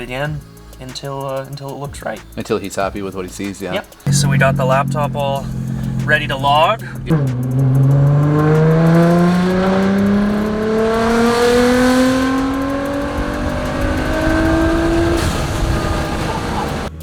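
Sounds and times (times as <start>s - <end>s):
car engine accelerating: 4.0s - 17.0s.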